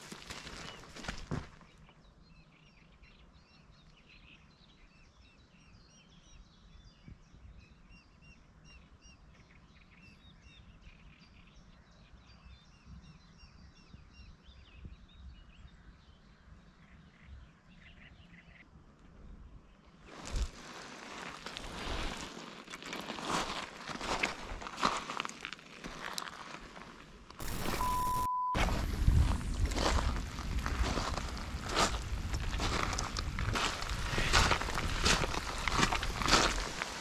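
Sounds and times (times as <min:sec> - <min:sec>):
faint birdsong: 0:00.0 - 0:20.6.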